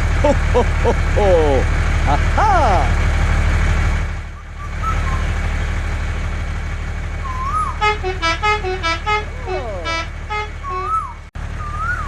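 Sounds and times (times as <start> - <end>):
tractor engine chugging: 0.0 - 12.0
beeping horn playing a tune: 7.3 - 11.2.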